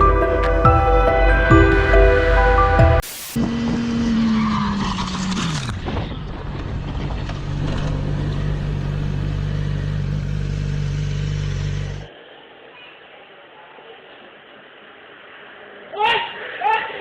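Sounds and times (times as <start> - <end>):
road noise: 0.0 - 12.2
vehicle engine droning: 0.0 - 12.2.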